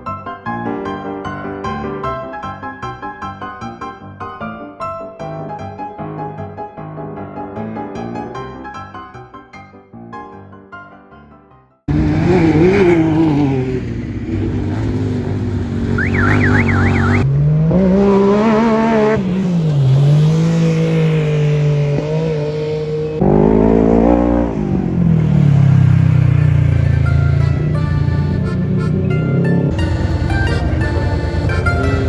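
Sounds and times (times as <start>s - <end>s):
racing engines revving: 11.9s - 32.0s.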